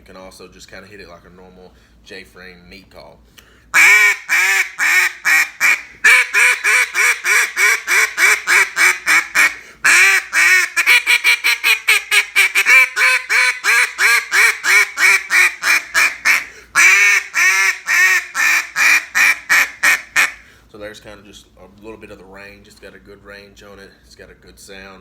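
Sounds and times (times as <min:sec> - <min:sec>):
duck call quacks: 0:03.8 - 0:20.4.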